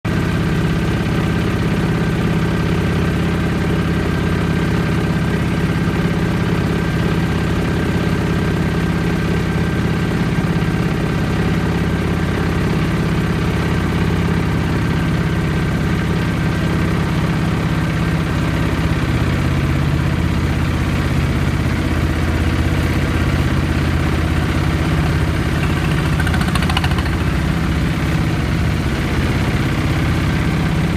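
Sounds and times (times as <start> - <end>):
boat engine droning: 19.8 - 30.9.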